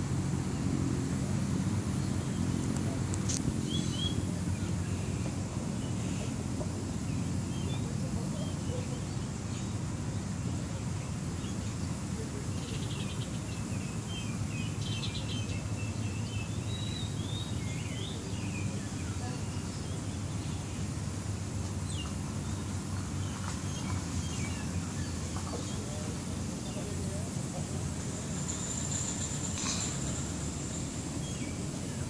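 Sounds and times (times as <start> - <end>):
low outdoor rumble: 0.0 - 32.0
birds chirping and trilling: 3.6 - 11.9, 12.5 - 21.0, 28.4 - 32.0.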